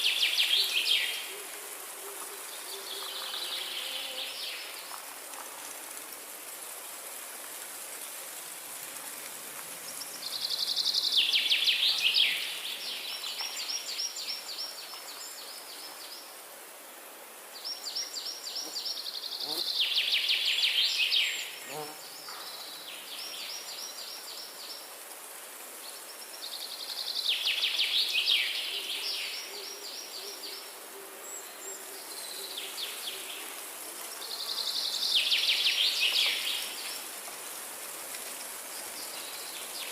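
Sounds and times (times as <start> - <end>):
songbird singing: 0.0 - 5.0, 9.9 - 16.3, 17.6 - 24.8, 25.8 - 37.1
high hiss of forest ambience: 0.0 - 39.9.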